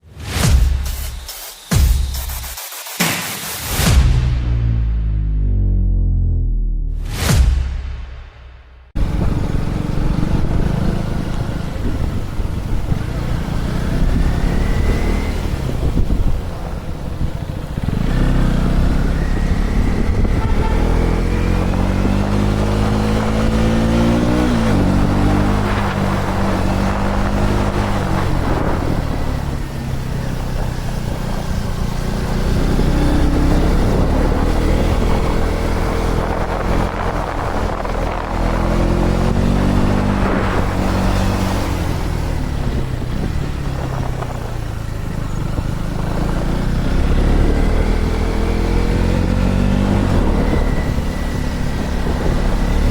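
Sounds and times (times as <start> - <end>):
motorcycle engine accelerating: 3.6 - 7.5, 8.9 - 52.9
wind rushing: 19.0 - 52.9.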